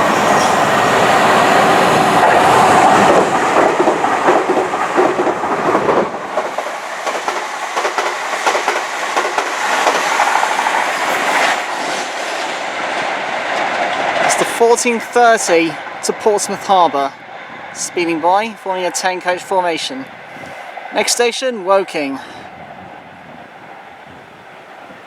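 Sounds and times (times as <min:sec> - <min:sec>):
train wheels rushing on rail: 0:00.0 - 0:25.0
clickety-clack over rail joints: 0:01.6 - 0:17.0.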